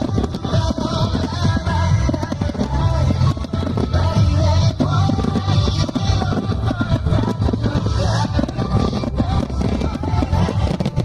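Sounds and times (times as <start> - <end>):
low rumbling firework booms: 0.0 - 11.0
music playing: 0.0 - 11.0
sharp firework cracks: 0.0 - 11.0.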